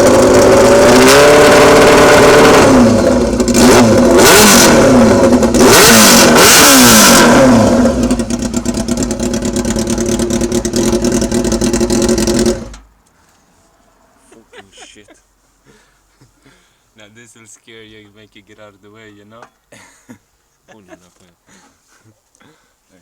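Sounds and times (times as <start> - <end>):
motorcycle engine revving: 0.0 - 12.9
motorcycle engine idling: 2.8 - 4.2, 7.3 - 12.8.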